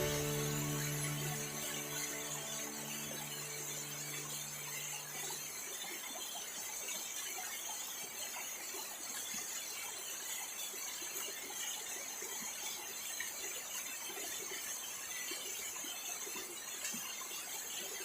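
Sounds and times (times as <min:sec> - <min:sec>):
background music: 0:00.0 - 0:05.5
high-pitched insect chorus: 0:00.0 - 0:06.8.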